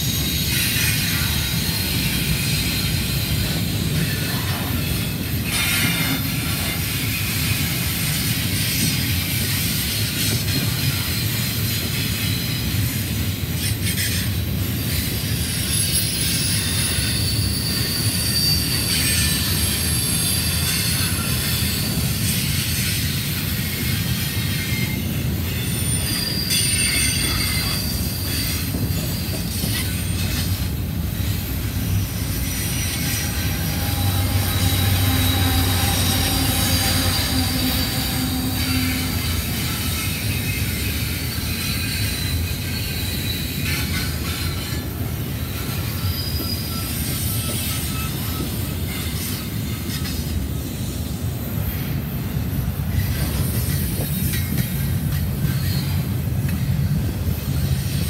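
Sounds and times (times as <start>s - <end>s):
freight train rumbling past: 0.0s - 58.0s
high-pitched wheel squeal: 13.6s - 50.9s.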